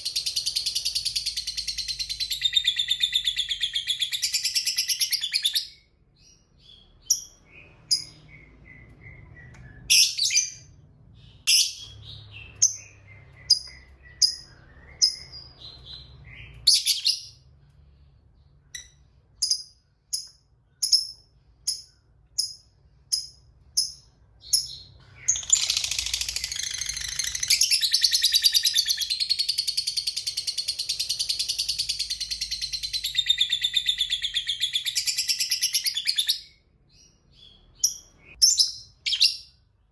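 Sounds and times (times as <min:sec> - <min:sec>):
lovebird chirps: 0:00.0 - 0:17.5, 0:18.4 - 0:39.6.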